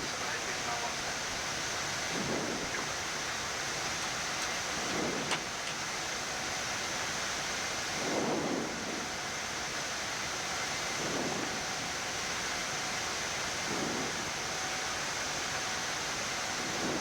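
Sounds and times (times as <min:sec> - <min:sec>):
muffled low swells: 0:00.0 - 0:05.3
faint constant tones: 0:00.0 - 0:17.0
hiss of airflow and equipment fans: 0:00.0 - 0:17.0.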